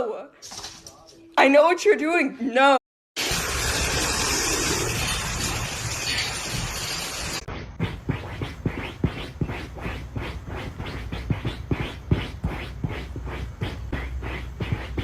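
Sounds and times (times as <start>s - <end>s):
rhythmic scratching with thumps: 7.5s - 15.0s.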